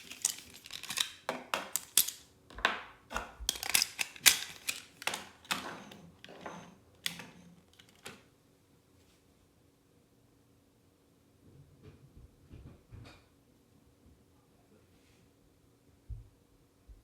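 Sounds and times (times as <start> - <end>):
plastic toy parts clicking: 0.0 - 2.3, 3.5 - 5.6.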